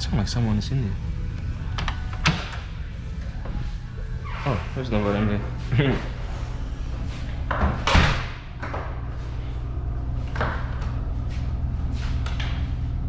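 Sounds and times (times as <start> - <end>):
steady low hum: 0.0 - 13.0
door banging shut: 7.6 - 8.4.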